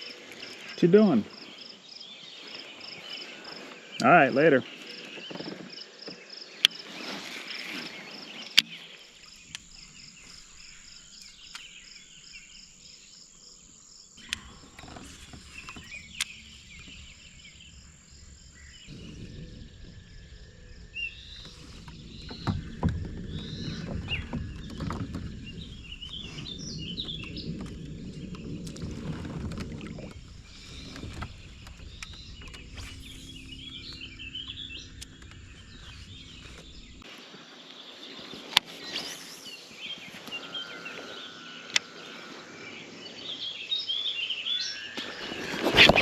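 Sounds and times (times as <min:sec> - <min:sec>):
birds chirping and singing: 0:07.6 - 0:46.0
low rumbling noise: 0:14.2 - 0:37.2.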